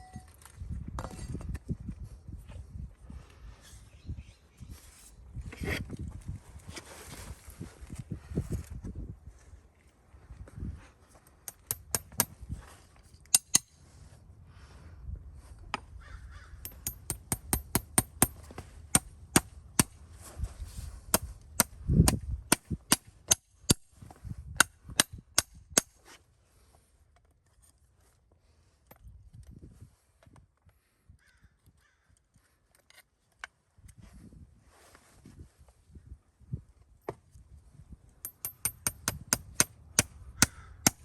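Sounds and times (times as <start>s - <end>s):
tools tapping on hoof: 11.4s - 12.4s, 13.3s - 13.8s, 16.6s - 20.0s, 38.2s - 41.0s.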